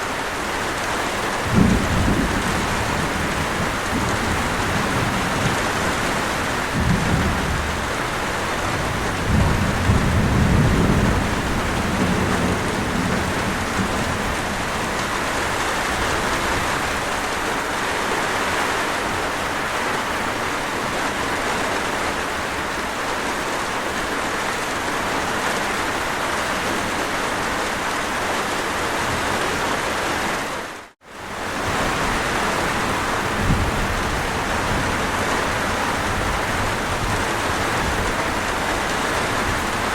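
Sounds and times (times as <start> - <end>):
heavy rain: 0.0 - 39.9
thunder rumbling: 1.4 - 17.3, 31.2 - 39.9.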